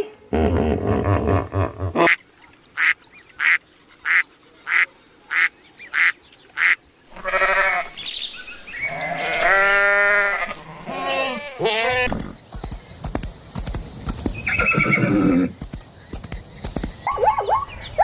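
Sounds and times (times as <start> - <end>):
wavering animal cries: 6.6 - 7.9, 8.9 - 12.4.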